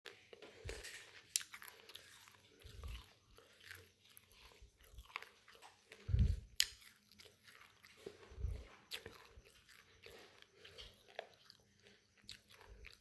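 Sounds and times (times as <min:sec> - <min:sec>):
parrot biting and chewing: 0:00.1 - 0:13.0
dull low thumps: 0:06.0 - 0:06.6.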